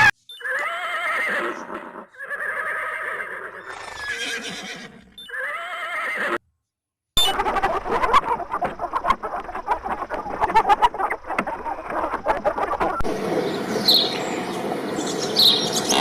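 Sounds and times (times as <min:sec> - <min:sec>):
horse whinnying: 0:00.0 - 0:06.4
other animal sound: 0:15.6 - 0:16.0.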